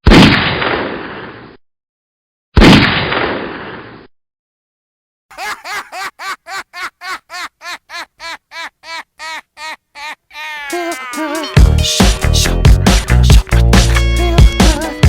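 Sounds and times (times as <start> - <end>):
heavy gunshot bangs: 2.6 - 3.6.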